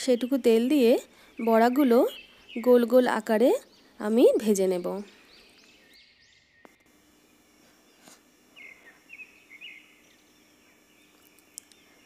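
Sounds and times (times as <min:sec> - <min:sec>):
soft bird chirps: 0:07.8 - 0:12.0.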